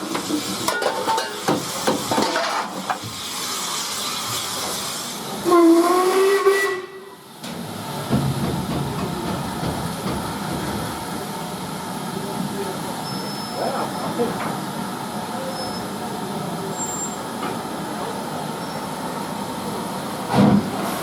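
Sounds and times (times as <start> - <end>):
hiss of steam: 1.3 - 8.1
steam locomotive whistle: 5.4 - 7.3
train metallic clanks: 7.4 - 11.5.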